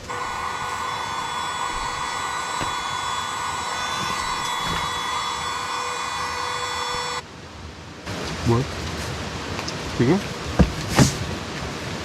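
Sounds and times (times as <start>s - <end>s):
electric blower motor whining: 0.0s - 7.2s.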